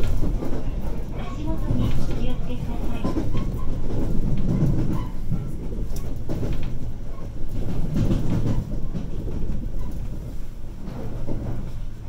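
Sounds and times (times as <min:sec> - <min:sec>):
train interior rumble: 0:00.0 - 0:12.0
wheel clacks over rail joints: 0:00.0 - 0:12.0.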